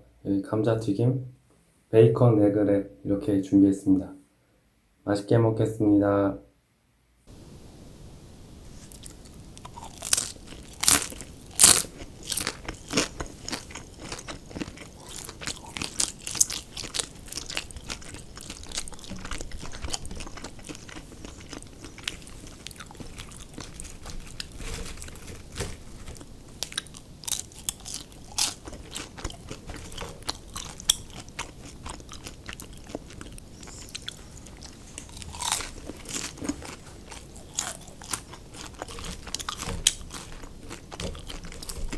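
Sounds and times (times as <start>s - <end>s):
chewing crispy fried food: 8.4s - 41.9s.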